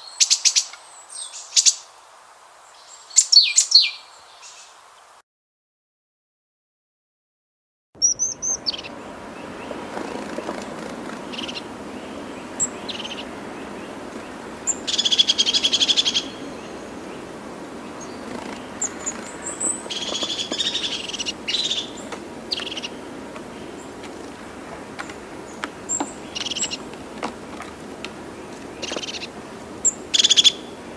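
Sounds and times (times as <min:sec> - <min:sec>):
bird trilling: 0:08.0 - 0:24.0, 0:25.0 - 0:26.9, 0:27.6 - 0:30.9
low background hiss: 0:08.1 - 0:30.9.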